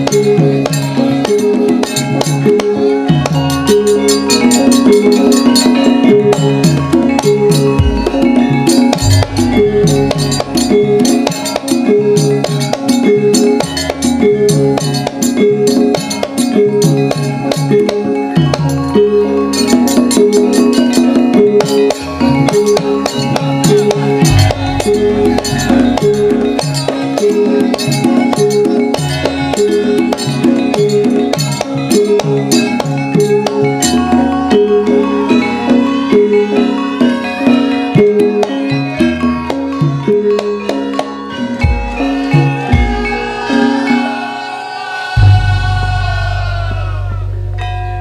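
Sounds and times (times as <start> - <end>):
fast percussion ticks: 0.0 - 34.2
metal-keyed notes: 0.0 - 48.0
deep drum strokes: 45.2 - 47.6.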